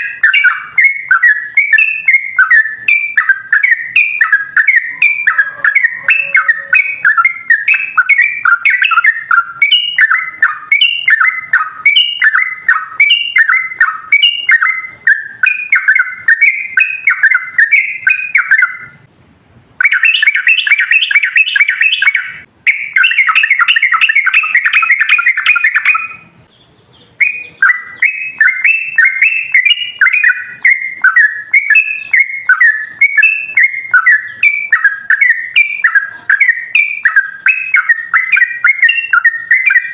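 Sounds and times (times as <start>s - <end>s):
bird chattering song: 0.0s - 19.1s, 19.8s - 39.9s.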